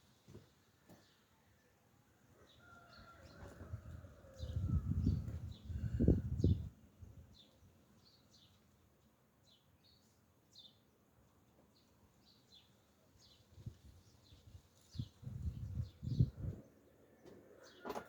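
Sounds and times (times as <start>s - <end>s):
birds chirping: 15.0s - 18.0s.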